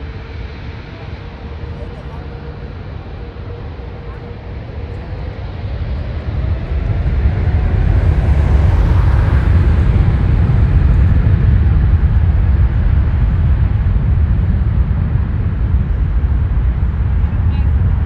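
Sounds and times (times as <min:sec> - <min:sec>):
faint rising whine: 0:00.0 - 0:14.4
jet engine rumble: 0:00.0 - 0:18.0.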